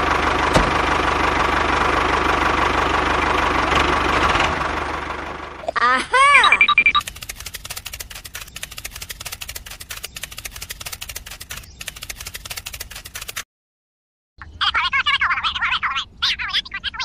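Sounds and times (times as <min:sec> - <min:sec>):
toy motor and gears clicking: 0:06.8 - 0:13.4.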